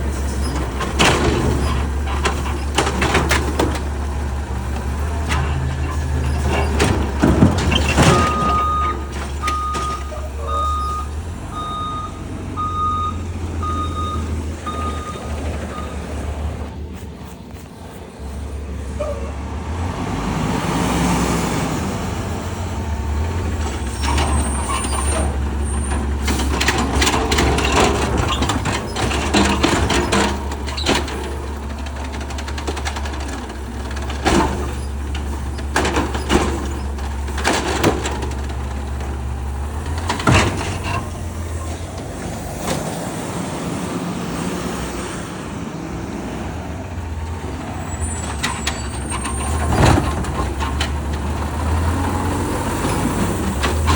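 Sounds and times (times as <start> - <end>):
diesel engine running: 0.0 - 53.9
metallic clanks and bangs: 0.3 - 10.3.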